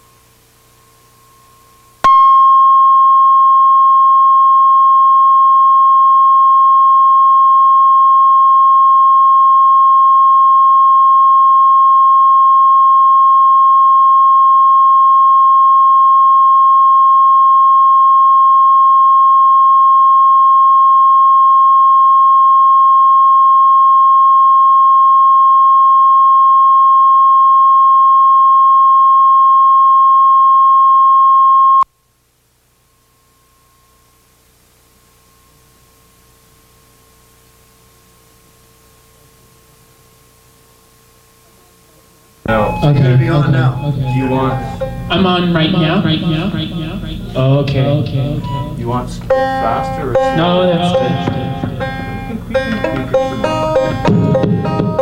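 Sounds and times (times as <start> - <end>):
electronic test tone: 0.8 - 31.9, 42.5 - 55.0.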